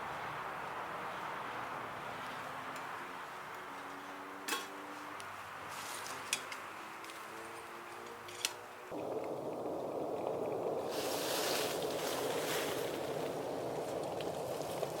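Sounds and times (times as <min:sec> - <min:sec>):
faint steady hiss: 0:08.3 - 0:15.0.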